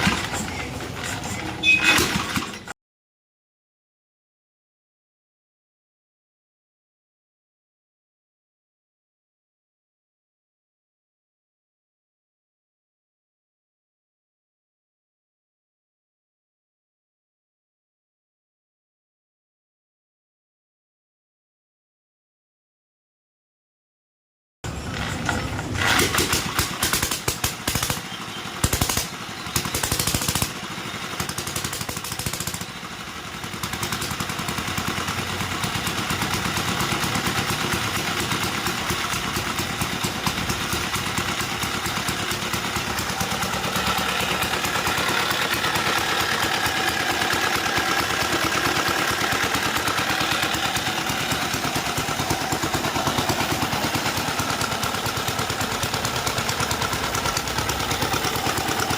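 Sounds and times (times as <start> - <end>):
diesel motorcycle engine running: 0.0 - 2.6, 24.7 - 58.9.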